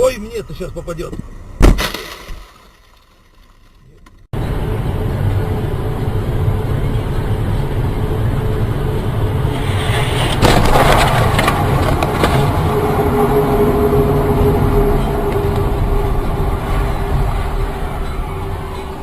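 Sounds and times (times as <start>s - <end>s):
car cabin road and engine rumble: 0.0s - 19.0s
vehicle collision bang and crunch: 1.6s - 4.2s, 9.8s - 12.7s.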